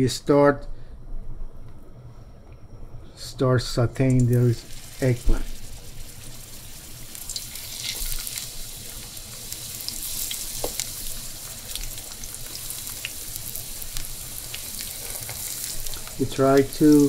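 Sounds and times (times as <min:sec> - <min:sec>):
eggplant sizzling in oil: 0:04.4 - 0:17.0
oil popping and crackling: 0:04.7 - 0:17.0.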